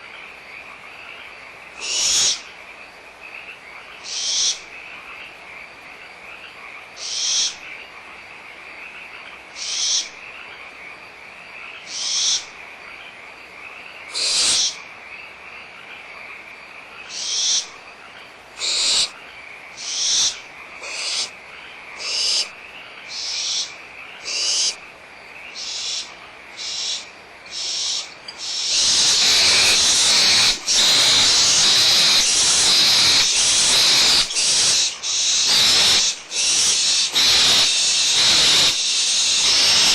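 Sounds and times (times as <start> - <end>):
owlets hissing: 18.6 - 19.1, 20.8 - 21.3, 27.6 - 39.9.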